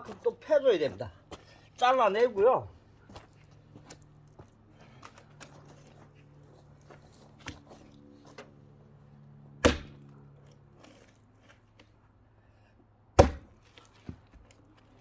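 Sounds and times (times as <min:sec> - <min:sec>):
axe chopping log: 0:09.6 - 0:10.1, 0:13.2 - 0:13.7.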